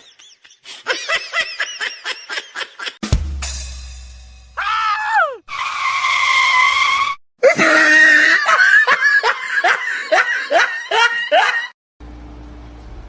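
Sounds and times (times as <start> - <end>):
high-pitched voice crying: 4.6 - 5.4.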